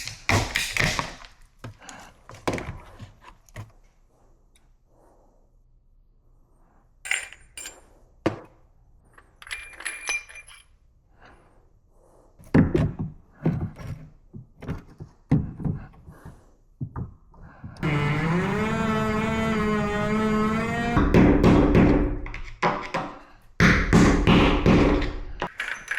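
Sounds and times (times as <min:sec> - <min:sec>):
hand tools clicking and knocking: 0:00.0 - 0:02.7, 0:21.0 - 0:25.9
metallic clink: 0:09.2 - 0:10.8, 0:25.5 - 0:25.9
music: 0:20.6 - 0:22.4.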